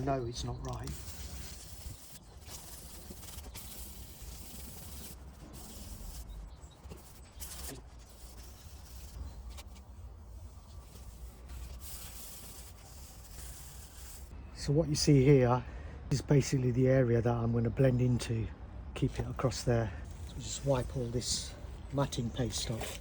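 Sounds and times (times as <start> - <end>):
sandpaper rubbing on panel: 0.8 - 9.8, 10.6 - 14.3.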